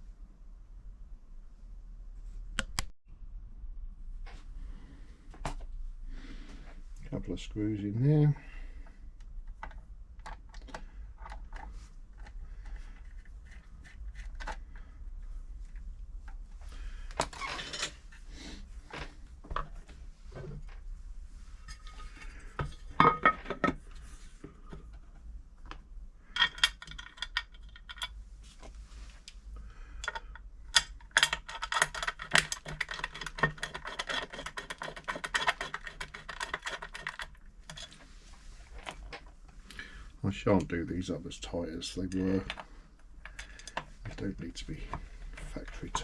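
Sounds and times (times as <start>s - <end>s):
metal clicks and knocks: 26.4s - 28.2s
screwdriver turning screws: 30.8s - 37.9s
rapid ticking and scraping: 31.1s - 38.0s.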